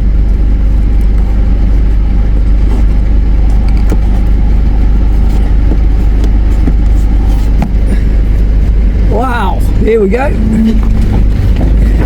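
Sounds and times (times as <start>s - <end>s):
engine and road rumble: 0.0s - 12.0s
knocks and rattles: 10.3s - 12.0s.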